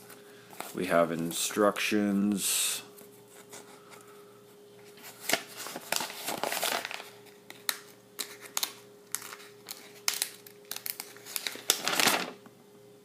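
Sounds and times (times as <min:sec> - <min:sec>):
paper and plastic rustling: 0:04.8 - 0:12.4.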